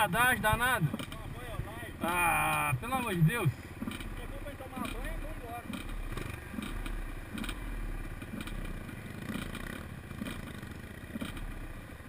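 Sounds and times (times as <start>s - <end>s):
dirt bike engine revving: 0.0s - 12.0s
clatter: 0.9s - 1.3s, 3.8s - 12.0s.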